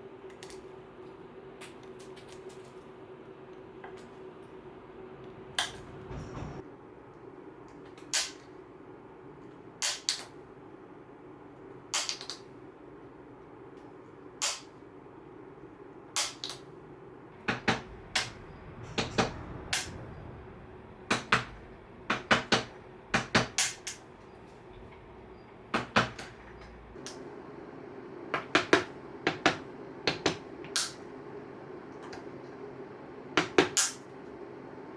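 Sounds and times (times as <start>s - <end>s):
steady low hum: 0.0s - 9.8s, 10.4s - 34.9s
hand tools tapping on wood: 25.7s - 26.8s.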